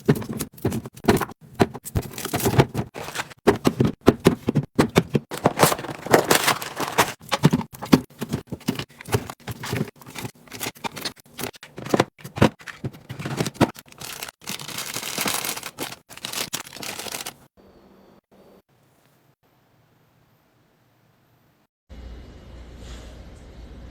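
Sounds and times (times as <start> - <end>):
packaging clicks and knocks: 0.0 - 17.4
wrappers rustling and tearing: 5.3 - 7.4, 9.0 - 17.4.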